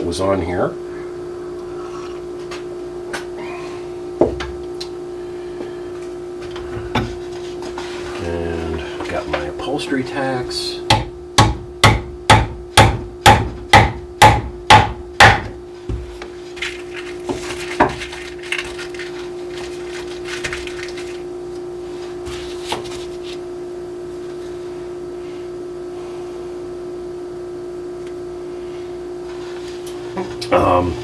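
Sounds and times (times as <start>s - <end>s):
steady hum: 0.0s - 31.0s
hammer driving tacks into wood: 10.9s - 15.6s.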